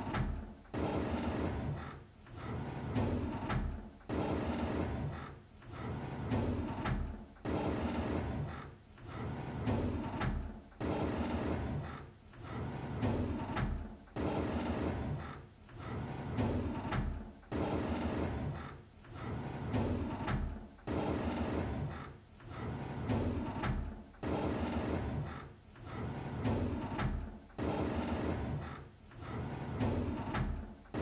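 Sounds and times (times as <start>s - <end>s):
drawer sliding open: 25.9s - 31.0s.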